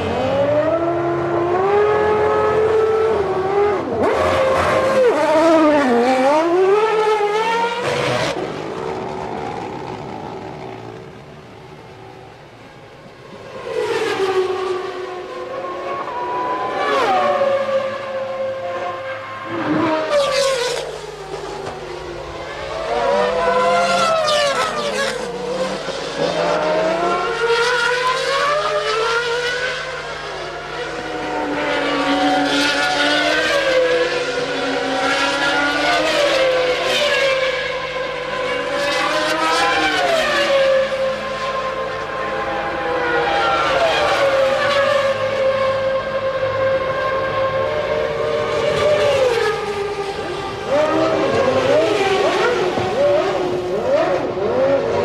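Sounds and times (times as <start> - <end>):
racing car engines at high revs: 0.0 - 55.0.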